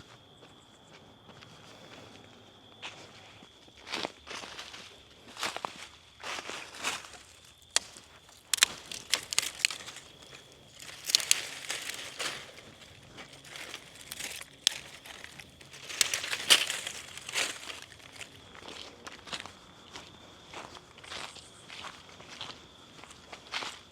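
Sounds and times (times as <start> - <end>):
crinkling and rustling: 7.1 - 18.4
sharp crackles: 7.7 - 18.4.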